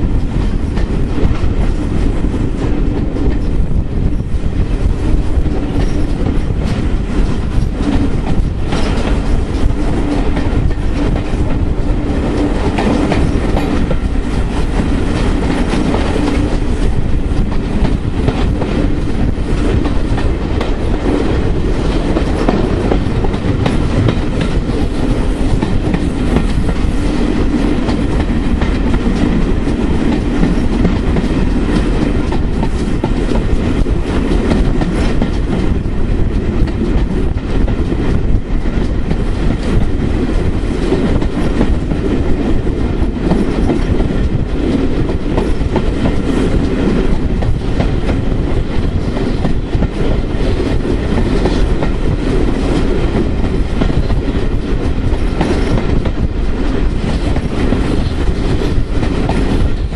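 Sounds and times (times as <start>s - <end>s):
train running noise: 0.0s - 59.9s
wheels clattering over rail joints: 5.6s - 11.5s.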